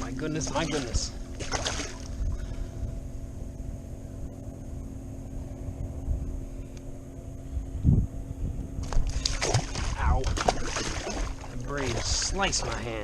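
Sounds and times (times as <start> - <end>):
engine hum: 0.0 - 13.0
wind on microphone: 5.4 - 13.0.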